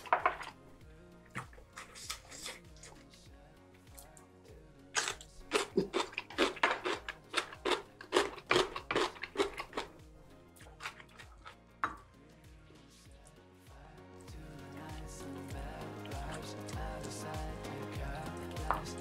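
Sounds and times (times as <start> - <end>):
quiet background music: 0.0 - 19.0
crunching crisp radish: 1.7 - 3.0, 5.0 - 9.9.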